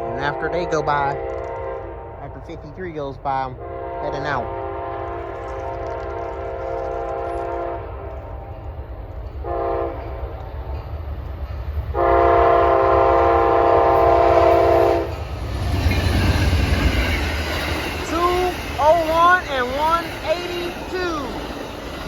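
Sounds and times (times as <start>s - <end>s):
locomotive air horn: 0.0s - 2.4s, 3.6s - 8.6s, 9.4s - 10.2s, 11.9s - 15.2s
train rumble: 0.0s - 22.0s
rail clatter: 4.8s - 22.0s.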